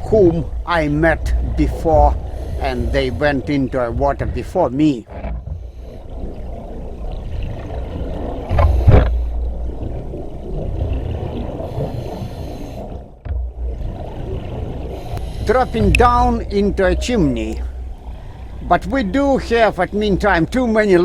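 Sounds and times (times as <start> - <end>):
hissing breath: 2.2 - 3.2, 11.6 - 13.0
scuba regulator breathing underwater: 2.2 - 3.4, 11.5 - 13.1, 14.8 - 16.1
exhaust bubbles gushing: 12.8 - 21.0.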